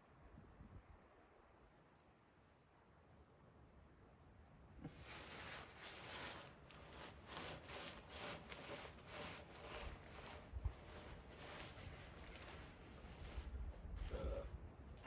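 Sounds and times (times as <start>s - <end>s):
rough rustling strokes: 5.0s - 14.4s.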